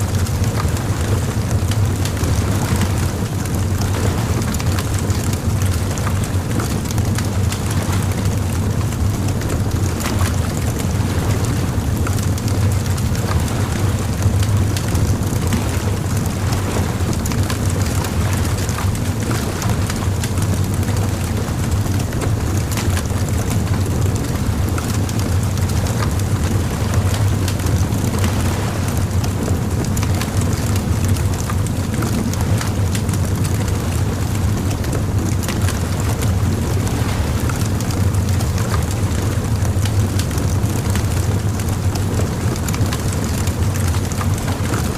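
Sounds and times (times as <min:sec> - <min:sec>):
low fire rumble: 0:00.0 - 0:44.9
bonfire crackling: 0:32.9 - 0:44.7.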